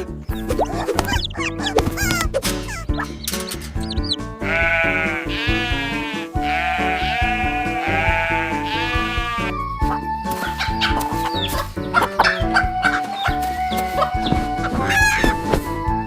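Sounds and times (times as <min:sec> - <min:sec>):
background music: 0:00.0 - 0:16.0
cartoon sheep bleating: 0:04.4 - 0:09.6.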